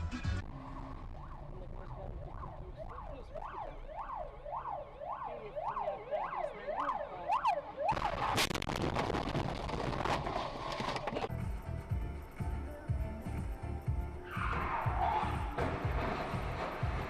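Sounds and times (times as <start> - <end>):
emergency siren wailing: 0.8 - 8.4.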